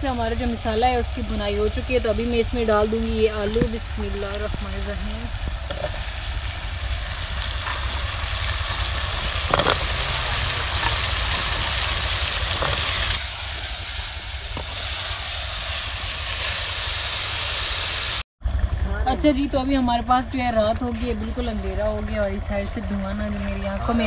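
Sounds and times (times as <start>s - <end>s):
potatoes sizzling in oil: 0.0s - 18.2s.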